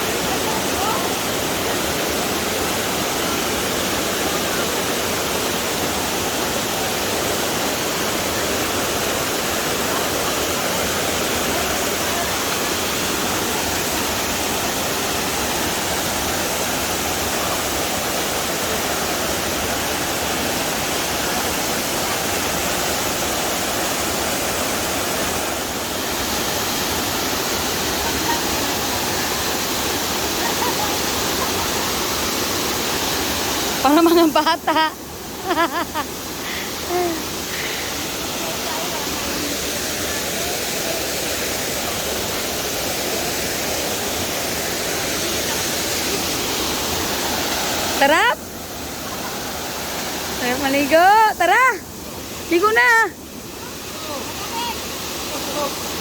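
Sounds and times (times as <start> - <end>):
waterfall pouring into pool: 0.0 - 34.3, 35.0 - 56.0.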